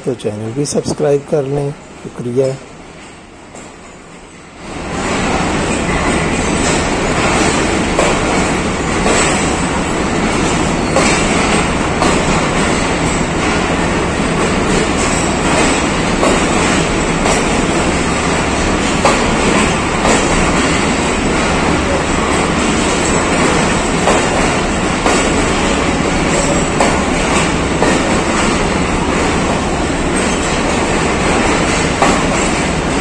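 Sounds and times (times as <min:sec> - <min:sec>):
train coaches rumbling and rattling: 0:00.0 - 0:33.0
wheels clicking over rail joints: 0:05.8 - 0:29.4.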